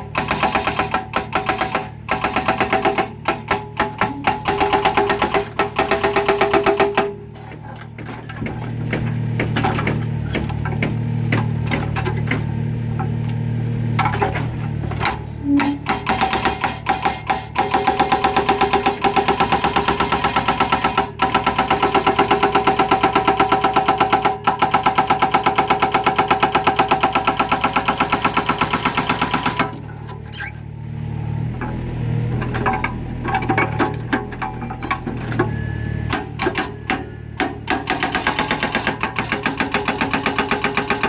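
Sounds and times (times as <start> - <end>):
hydraulic breaker hammering concrete: 0.0 - 13.2, 14.0 - 30.5, 32.4 - 41.0
excavator engine running: 0.0 - 41.0.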